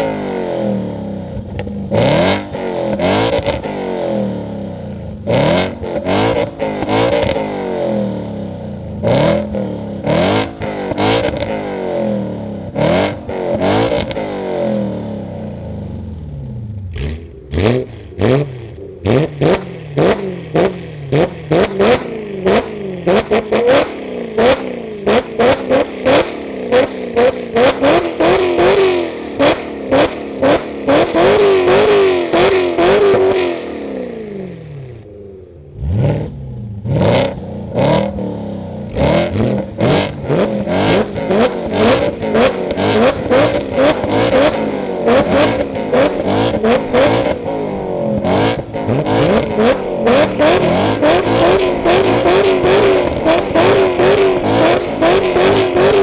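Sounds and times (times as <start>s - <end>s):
car engine revving hard: 0.0s - 4.6s, 5.2s - 8.4s, 9.0s - 15.3s, 16.9s - 35.0s, 35.7s - 56.0s
exhaust cracks: 38.8s - 56.0s.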